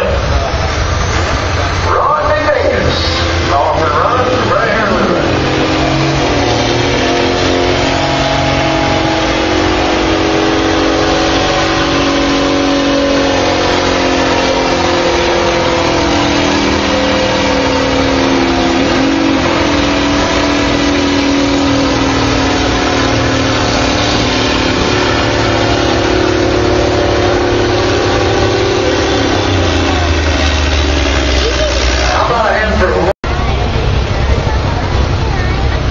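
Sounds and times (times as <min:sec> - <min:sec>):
tractor engine running under load: 0:00.0 - 0:35.9.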